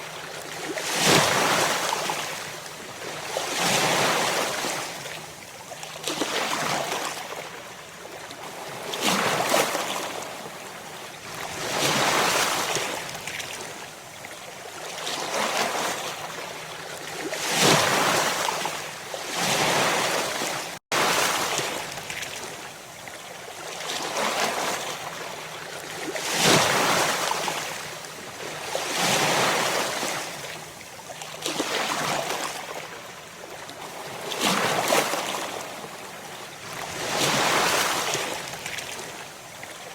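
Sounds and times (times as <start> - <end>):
ocean waves breaking: 34.0 - 39.3.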